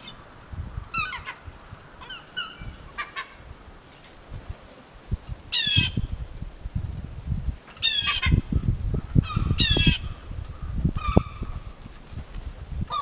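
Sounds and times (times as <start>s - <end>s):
gulls calling: 0.0s - 0.3s, 0.9s - 3.5s.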